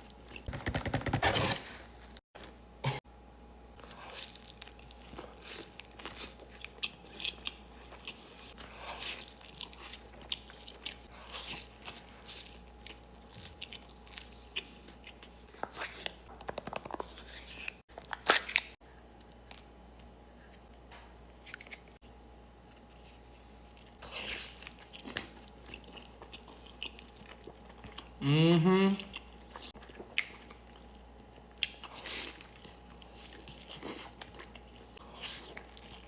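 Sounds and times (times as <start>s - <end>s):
person chewing crunchy food: 3.8s - 20.5s, 22.7s - 28.2s, 29.0s - 36.0s.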